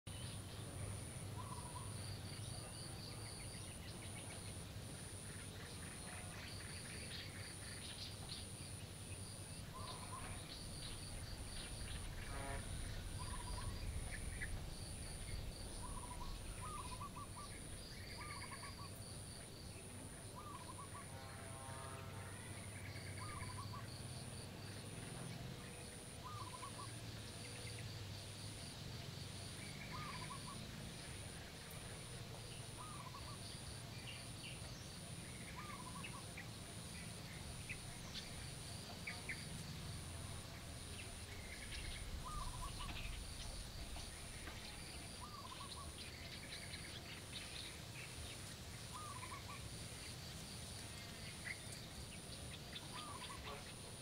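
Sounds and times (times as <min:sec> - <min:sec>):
birds chirping and calling: 0:01.3 - 0:08.6, 0:09.5 - 0:21.2, 0:22.9 - 0:24.0, 0:25.8 - 0:27.9, 0:29.6 - 0:30.6, 0:32.7 - 0:39.7, 0:40.5 - 0:50.1, 0:50.9 - 0:54.0
low hum: 0:07.7 - 0:26.6
high pulsing chirp: 0:09.6 - 0:19.6.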